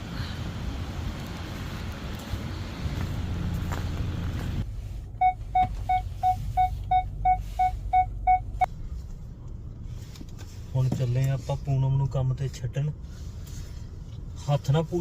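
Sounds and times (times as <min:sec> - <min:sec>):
car warning chime beeping: 0:05.2 - 0:08.7.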